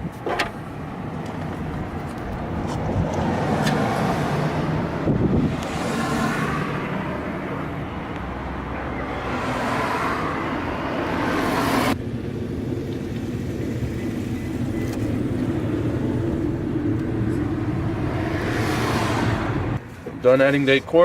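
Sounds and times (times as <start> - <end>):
passing road traffic: 0.0 - 21.0
low rumble: 12.0 - 19.8.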